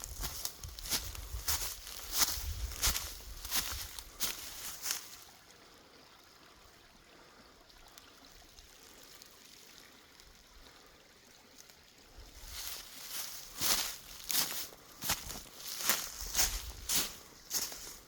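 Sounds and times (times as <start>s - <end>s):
footstep crunch on brush: 0.0s - 5.1s, 12.4s - 18.0s
creek water rushing: 0.0s - 18.0s.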